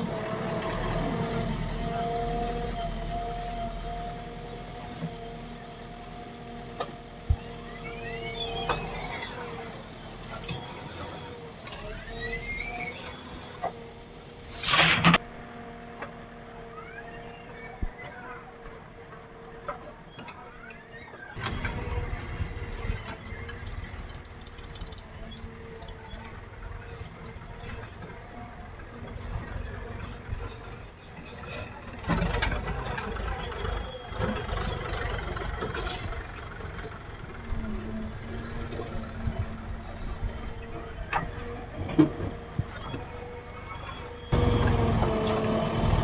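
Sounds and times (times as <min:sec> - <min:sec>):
short rising tones: 0:00.0 - 0:15.2
diesel engine idling: 0:00.0 - 0:17.5, 0:21.4 - 0:46.0.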